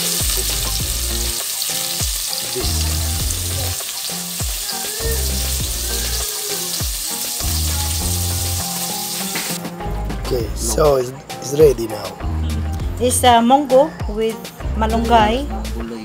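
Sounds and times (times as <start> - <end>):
peppers sizzling in oil: 0.0 - 9.6
background music with bass and beat: 0.0 - 16.0.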